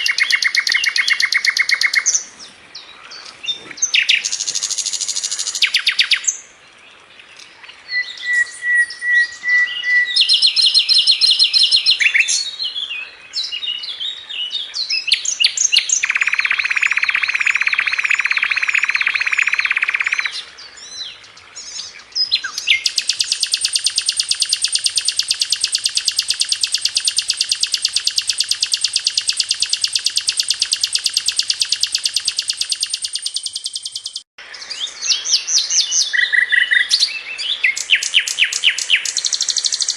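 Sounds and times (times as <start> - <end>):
flycatcher singing: 0.0 - 2.3, 7.9 - 12.5, 14.8 - 20.4, 21.7 - 39.9.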